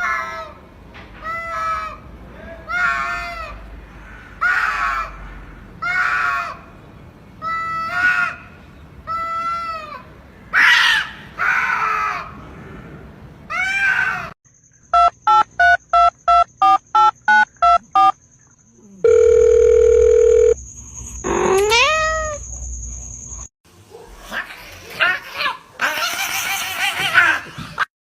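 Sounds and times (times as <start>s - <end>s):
short electronic beeps: 14.9s - 18.2s
cat meowing: 21.6s - 22.4s.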